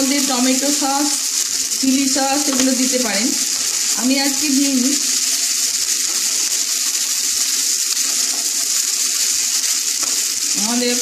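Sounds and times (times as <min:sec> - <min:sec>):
food sizzling in oil: 0:00.0 - 0:11.0
wooden spatula stirring: 0:05.8 - 0:10.5.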